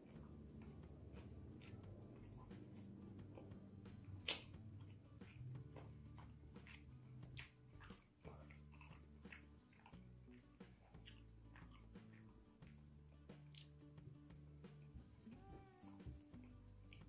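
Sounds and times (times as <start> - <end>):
close-up chewing: 0.0 - 17.0
wet mouth clicks and smacks: 0.6 - 13.8.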